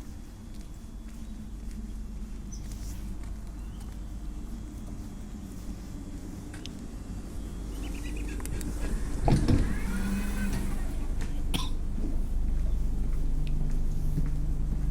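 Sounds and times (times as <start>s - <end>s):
train rumbling: 0.0s - 14.9s.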